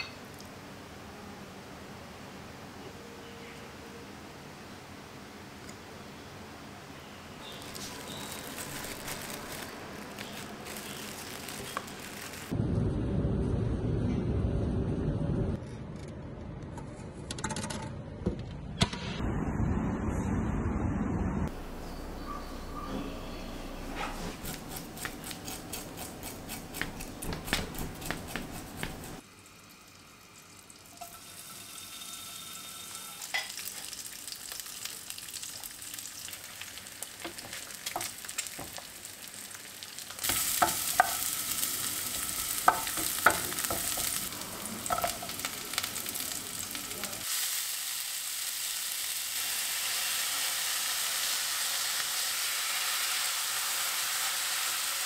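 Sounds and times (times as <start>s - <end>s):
plastic wrap crinkling: 7.5s - 12.5s
fish and egg sizzling in a pan: 7.5s - 12.6s, 28.8s - 55.0s.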